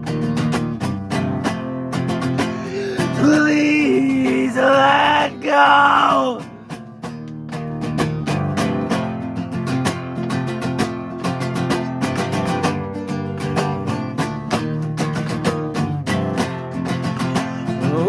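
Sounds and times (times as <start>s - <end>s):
guitar strumming rapidly: 0.0s - 18.0s.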